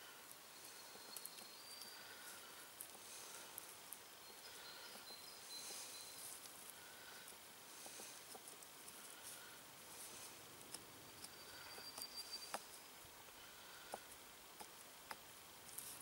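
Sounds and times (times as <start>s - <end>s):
small ticks and rustles: 0.0s - 16.0s
faint high bird calls: 0.5s - 3.5s, 4.1s - 7.3s, 11.0s - 13.0s.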